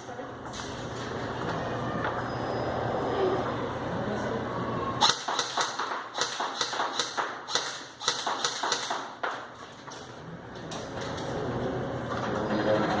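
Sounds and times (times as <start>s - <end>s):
airsoft rifle shots: 5.0s - 9.5s.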